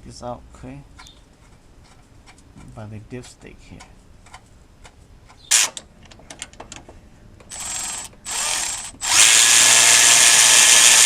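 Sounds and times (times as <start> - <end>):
cordless power driver running: 7.5 - 11.0.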